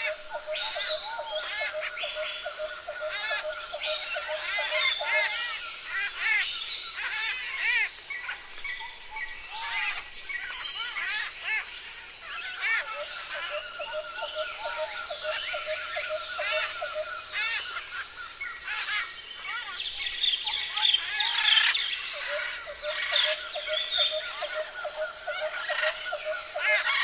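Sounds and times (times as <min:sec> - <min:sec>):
parrots chirping and chattering: 0:18.7 - 0:27.0.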